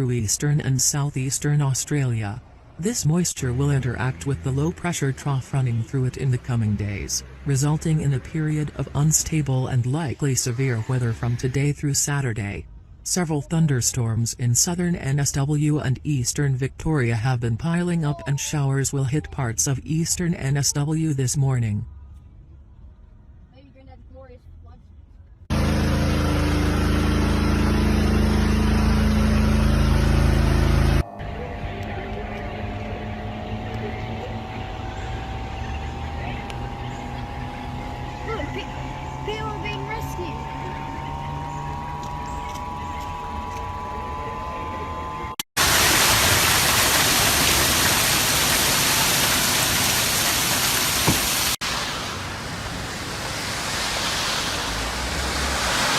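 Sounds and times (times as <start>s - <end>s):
vehicle engine running: 0.0s - 13.0s, 25.4s - 55.9s
faint hum: 24.6s - 48.7s
heavy rain hissing: 45.6s - 55.9s.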